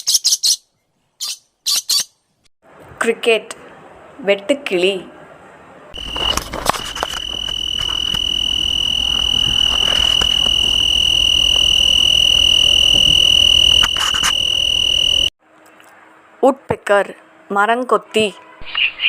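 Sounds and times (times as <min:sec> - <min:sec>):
cricket trilling: 0:06.0 - 0:15.3.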